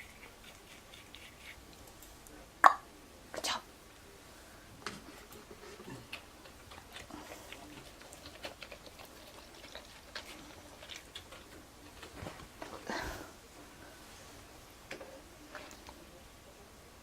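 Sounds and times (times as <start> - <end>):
toothbrush scraping teeth: 0.0 - 1.8, 5.5 - 12.2.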